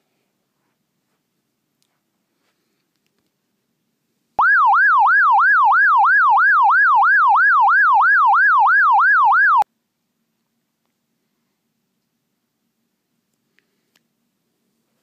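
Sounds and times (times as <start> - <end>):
electronic siren yelping: 4.4 - 9.6.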